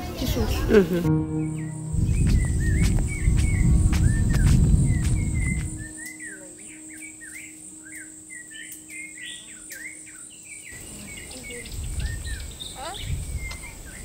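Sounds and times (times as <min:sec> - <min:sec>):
birds chirping: 0:00.0 - 0:14.0
low rushing noise: 0:01.0 - 0:06.0.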